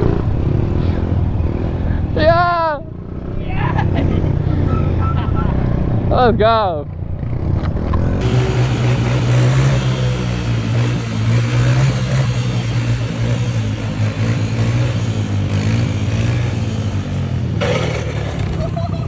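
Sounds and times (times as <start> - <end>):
small engine running: 8.1 - 19.0.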